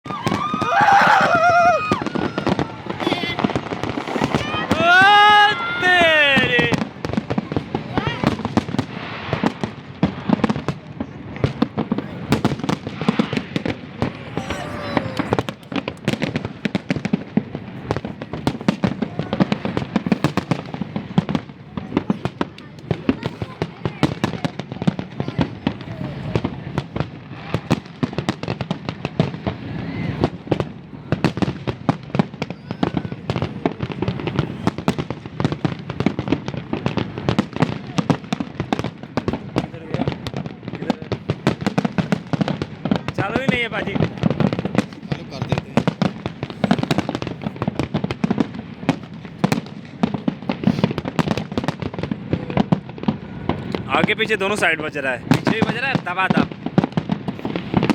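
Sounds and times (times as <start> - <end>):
fireworks bangs and cracks: 0.0 - 57.9.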